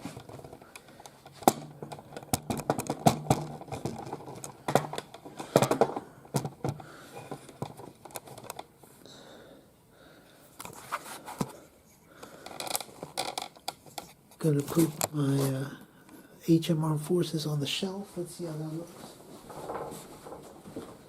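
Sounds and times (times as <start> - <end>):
plastic toys clicking and knocking: 0.1 - 8.7, 12.2 - 14.1.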